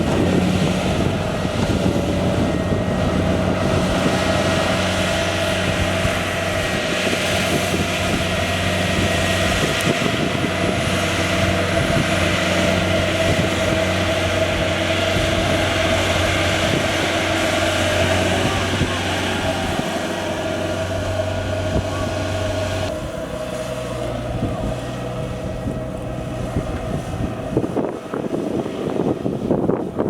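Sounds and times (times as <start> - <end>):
engine drone: 0.0 - 30.0
whirring mechanical hum: 0.0 - 30.0.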